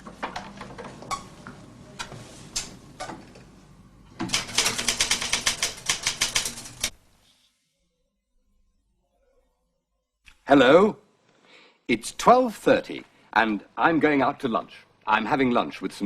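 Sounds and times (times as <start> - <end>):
typewriter typing: 4.2 - 7.0.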